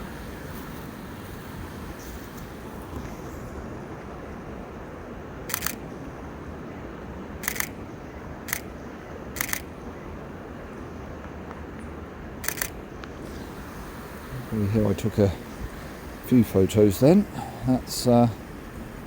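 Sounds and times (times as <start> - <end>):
camera shutter clicking: 5.5 - 5.8, 7.4 - 7.7, 8.5 - 8.7, 9.4 - 9.7, 12.4 - 12.8.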